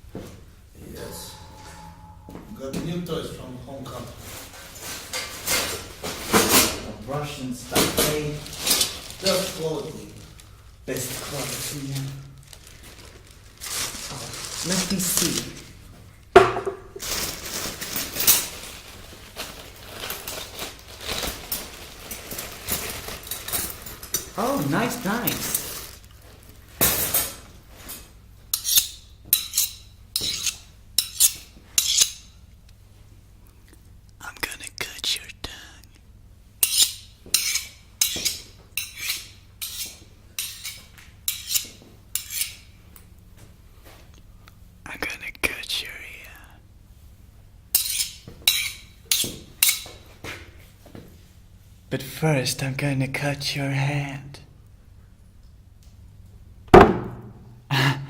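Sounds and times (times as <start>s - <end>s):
wrapping rustling and crinkling: 4.1s - 6.4s, 7.4s - 16.0s, 17.0s - 26.8s
knife blade scraping on steel: 28.5s - 32.3s, 36.6s - 42.7s, 47.8s - 49.9s.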